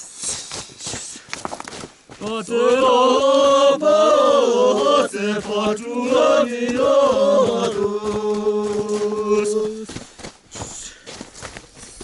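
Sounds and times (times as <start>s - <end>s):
man chanting: 2.2s - 3.2s, 3.8s - 9.9s.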